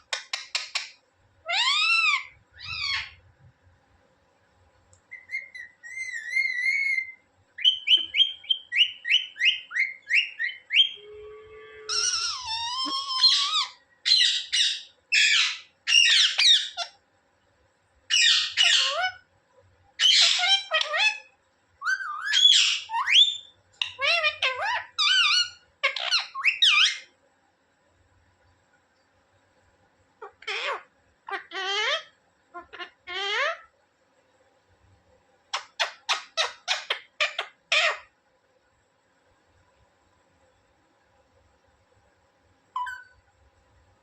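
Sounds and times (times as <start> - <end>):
parrot chirping: 0.0 - 3.2, 5.1 - 11.2, 11.8 - 17.0, 18.1 - 19.2, 20.0 - 27.1, 30.2 - 33.7, 35.5 - 38.1, 42.8 - 43.2
parrot calling: 0.1 - 3.2, 5.1 - 17.0, 18.1 - 19.2, 20.0 - 27.1, 30.2 - 33.7, 35.5 - 38.1
parrot whistling: 5.1 - 16.9, 21.8 - 27.1, 42.8 - 43.2.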